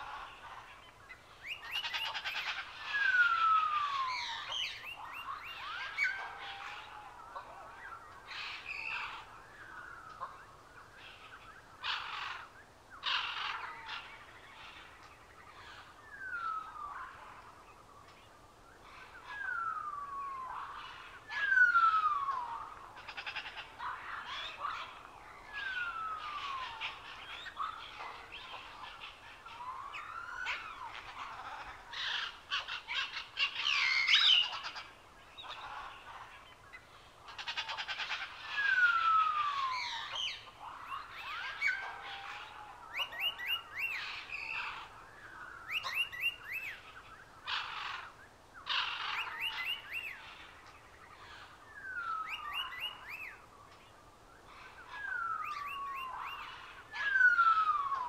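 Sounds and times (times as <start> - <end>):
harsh bird squawks: 37.3 - 50.6, 51.2 - 53.4, 54.5 - 58.0.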